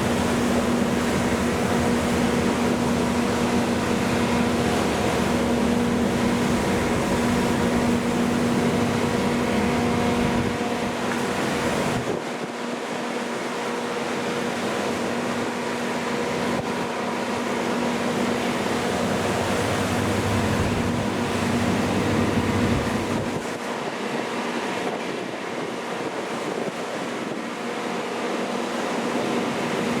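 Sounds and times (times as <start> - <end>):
boat engine hum: 0.0 - 30.0
water wash: 0.0 - 30.0
wind noise: 18.8 - 27.6.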